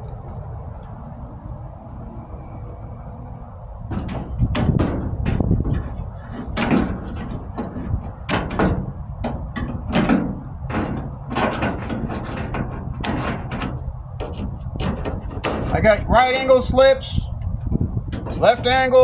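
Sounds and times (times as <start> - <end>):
hand tools clanking together: 3.9 - 16.7.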